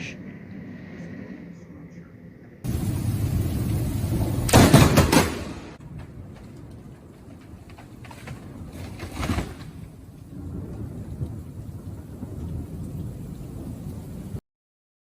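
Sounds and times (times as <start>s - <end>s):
low storm rumble: 0.0s - 14.4s
rain: 2.6s - 14.4s.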